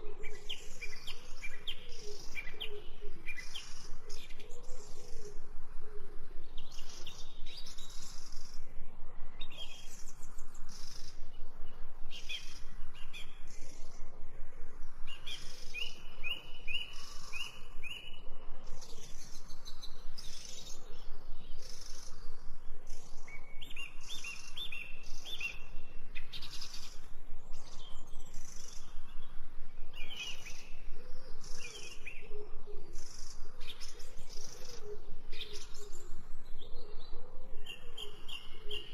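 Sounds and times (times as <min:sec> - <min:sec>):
birds chirping and singing: 0:00.0 - 0:05.4, 0:06.0 - 0:08.7, 0:09.4 - 0:14.2, 0:15.0 - 0:38.9
low cooing call: 0:00.0 - 0:06.6.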